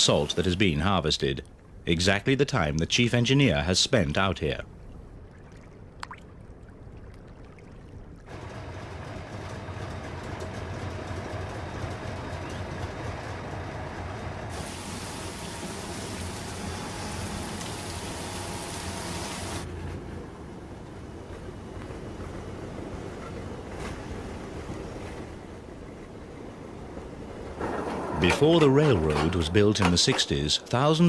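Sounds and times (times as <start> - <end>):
machine humming: 8.3 - 19.7
loud hiss: 14.5 - 19.7
water rushing: 14.5 - 19.8.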